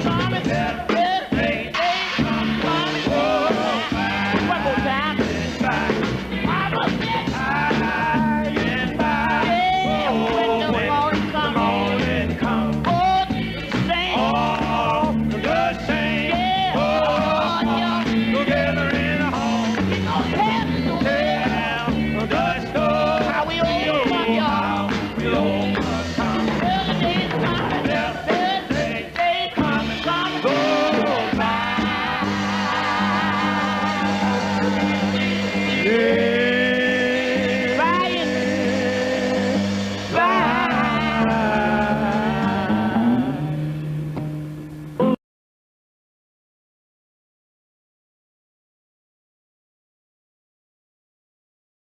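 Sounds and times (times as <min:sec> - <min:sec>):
gospel quartet singing in harmony: 0:00.0 - 0:43.7
instrumental backing with bass line: 0:00.0 - 0:45.2.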